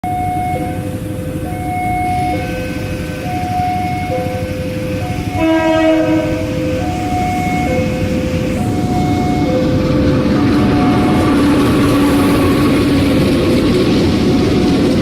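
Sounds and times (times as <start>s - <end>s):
train horn: 0.0s - 11.3s
train engine rumble: 0.0s - 15.0s.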